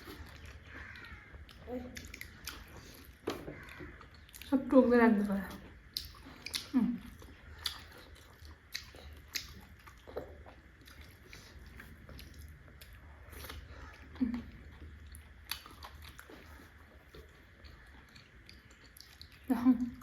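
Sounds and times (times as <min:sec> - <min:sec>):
biting and chewing food: 0:00.0 - 0:04.6, 0:05.5 - 0:19.5
mouth clicks and smacks: 0:05.9 - 0:12.6.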